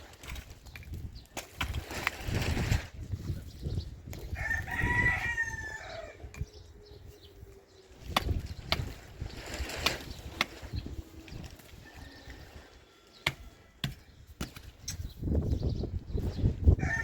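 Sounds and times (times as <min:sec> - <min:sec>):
rooster crowing: 0:04.3 - 0:06.2, 0:11.8 - 0:13.7, 0:16.8 - 0:17.0.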